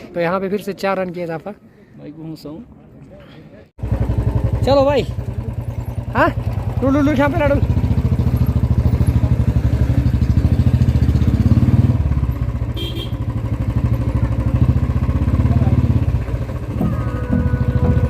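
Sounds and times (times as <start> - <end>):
motorcycle engine running: 3.8 - 18.0.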